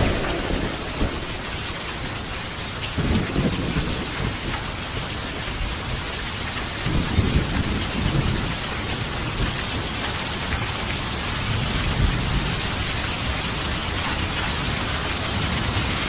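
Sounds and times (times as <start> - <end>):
rolling thunder: 0.0 - 6.1, 6.7 - 10.0
heavy rain: 0.0 - 16.0.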